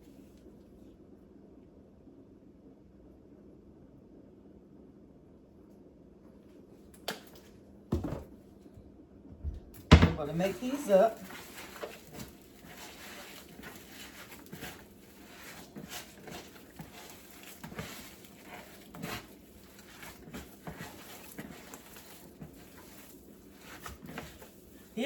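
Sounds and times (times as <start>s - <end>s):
hands squishing meat mixture: 10.1s - 25.0s.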